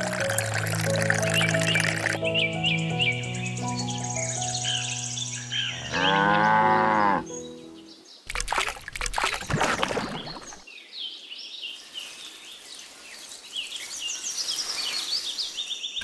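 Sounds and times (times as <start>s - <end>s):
noisy splashing: 0.0s - 2.2s, 8.3s - 10.6s
small birds chirping: 9.9s - 16.0s.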